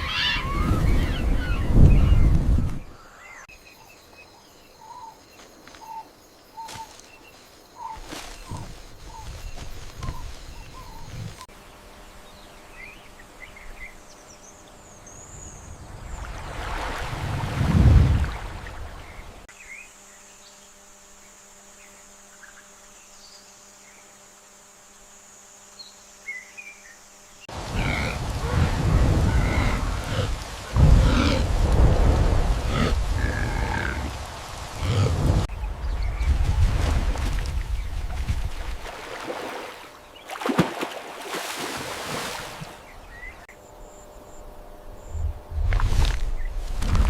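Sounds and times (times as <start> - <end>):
rush of wind or water: 0.0 - 3.0, 15.4 - 19.5, 27.5 - 43.1
high insect drone: 3.2 - 15.6, 19.5 - 35.6, 42.6 - 46.8.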